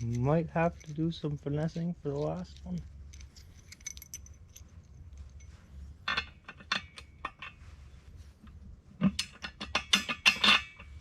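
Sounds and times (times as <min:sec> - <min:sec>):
metal bolt clinking: 0:00.0 - 0:01.1, 0:02.1 - 0:07.6, 0:09.0 - 0:11.0
steady low hum: 0:00.0 - 0:11.0.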